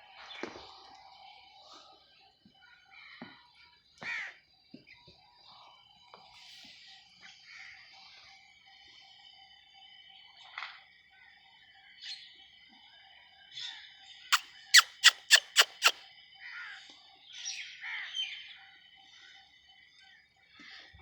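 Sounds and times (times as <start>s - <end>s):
birds chirping: 14.8s - 16.0s.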